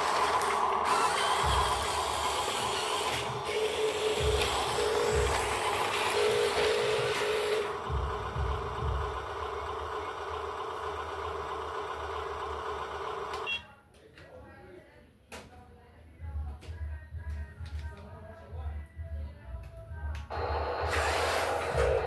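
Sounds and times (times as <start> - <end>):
machinery whine: 0.0 - 13.5, 20.3 - 22.0
hiss: 20.8 - 21.8.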